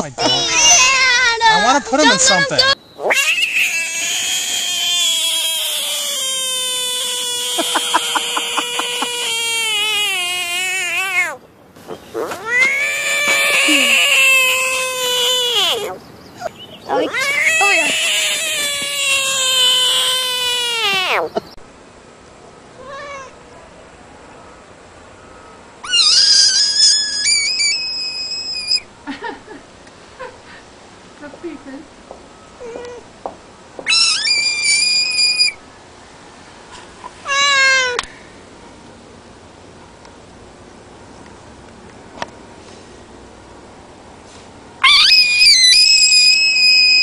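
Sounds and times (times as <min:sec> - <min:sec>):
frog distress scream: 0:00.2 - 0:01.1, 0:03.0 - 0:11.4, 0:12.2 - 0:21.4, 0:25.8 - 0:28.9, 0:33.8 - 0:35.6, 0:44.8 - 0:47.0.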